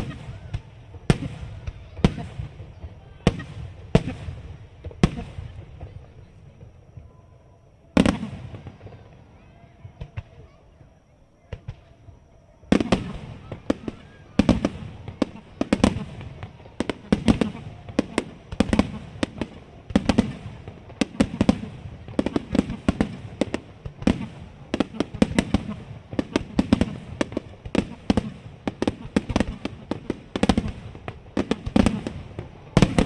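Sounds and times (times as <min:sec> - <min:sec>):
firework shells bursting: 0:12.8 - 0:33.0.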